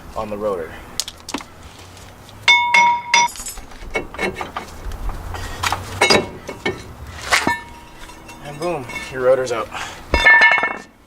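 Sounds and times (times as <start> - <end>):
hammer striking metal rotor: 2.5 - 3.4
metallic ringing tone: 2.5 - 3.6, 6.0 - 10.9.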